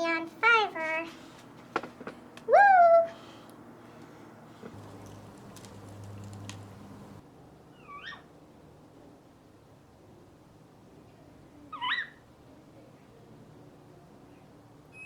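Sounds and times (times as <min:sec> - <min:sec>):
faint clicks: 0:03.4 - 0:07.2.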